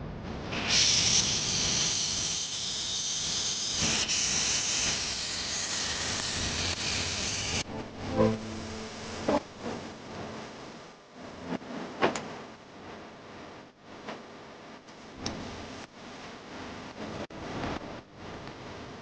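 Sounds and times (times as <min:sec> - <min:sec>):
pressurised gas hissing from pipes: 0:00.5 - 0:07.6.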